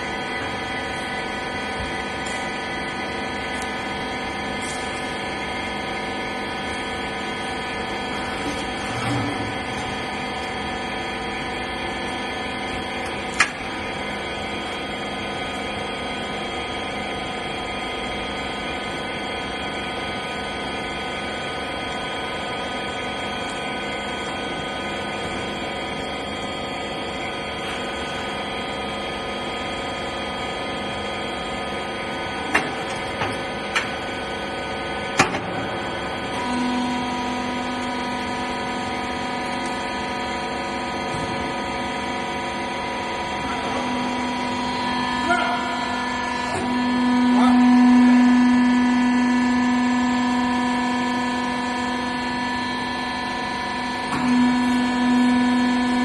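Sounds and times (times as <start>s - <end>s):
baler machine humming: 0.0s - 56.0s.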